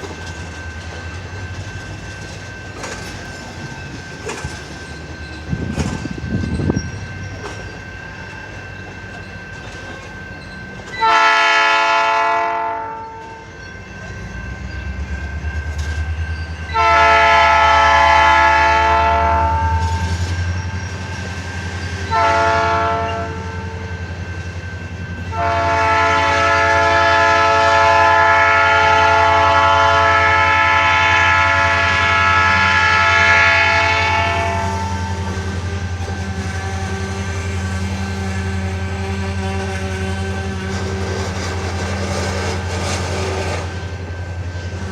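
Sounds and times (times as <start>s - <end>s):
diesel locomotive rumble: 0.0s - 44.9s
train wheels on rails: 0.0s - 44.9s
train air horn blasts: 11.0s - 13.5s, 16.7s - 20.4s, 22.0s - 24.0s, 25.3s - 44.0s.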